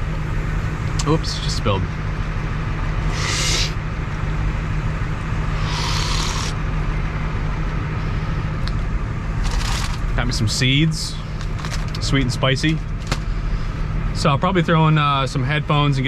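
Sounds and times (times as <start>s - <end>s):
short hissing rustles: 3.1s - 3.8s, 5.6s - 6.6s.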